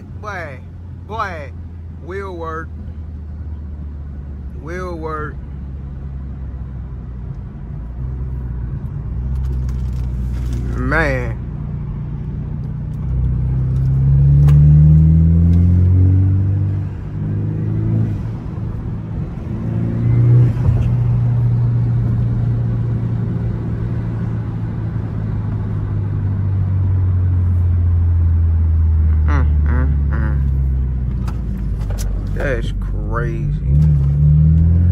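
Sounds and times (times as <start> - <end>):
car engine accelerating through gears: 11.8 - 34.9.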